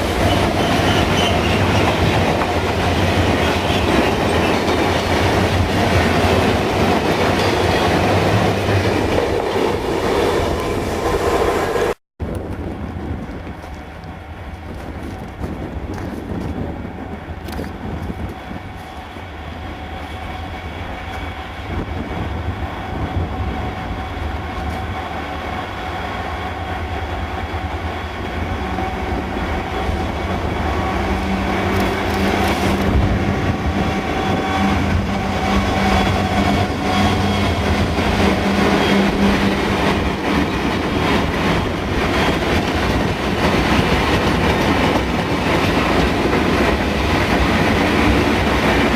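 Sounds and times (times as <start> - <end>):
diesel locomotive engine: 0.0 - 48.9
train wheels on rails: 0.0 - 48.9.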